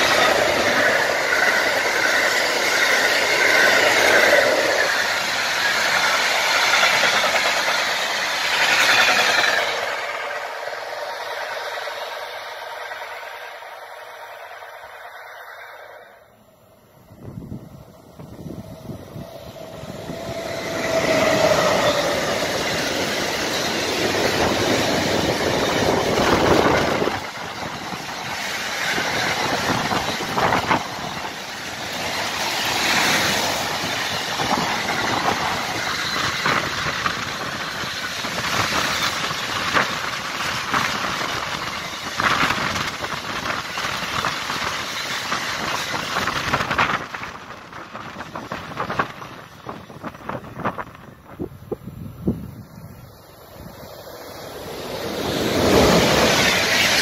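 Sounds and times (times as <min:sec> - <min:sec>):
freight train rolling past: 0:00.0 - 0:57.0.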